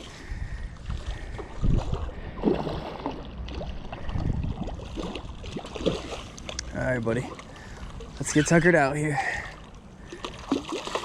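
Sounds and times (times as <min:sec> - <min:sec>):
wind rumble on microphone: 0:00.0 - 0:06.1
water sloshing around kayak hull: 0:00.0 - 0:11.0.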